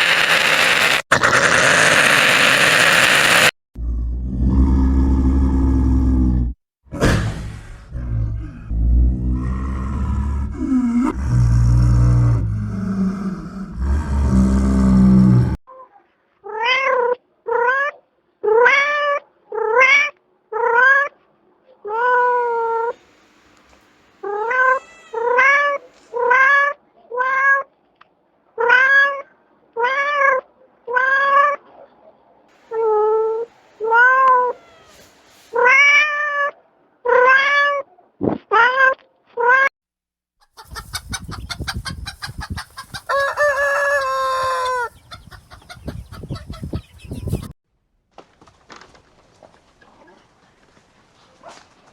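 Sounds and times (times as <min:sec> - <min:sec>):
harsh pulsing animal call: 0:00.0 - 0:06.5
cat meowing: 0:24.2 - 0:27.7, 0:32.8 - 0:37.8.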